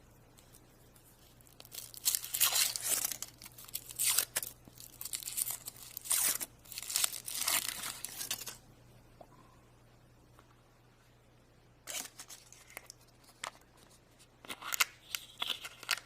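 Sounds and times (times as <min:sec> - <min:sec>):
wrapper tearing and crinkling: 0:01.4 - 0:08.6.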